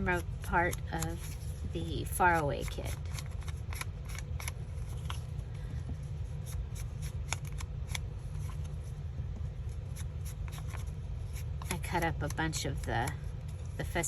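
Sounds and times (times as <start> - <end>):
paper rustling: 0.0 - 9.0
steady low hum: 0.0 - 14.0.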